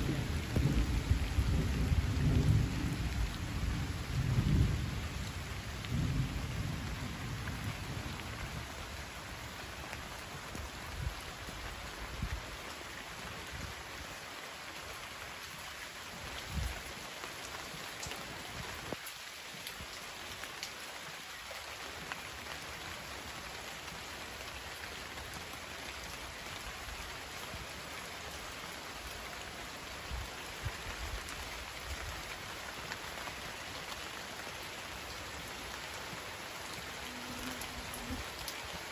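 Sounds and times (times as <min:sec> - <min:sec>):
thunder rumble: 0:00.0 - 0:08.5
rain falling: 0:00.0 - 0:38.9.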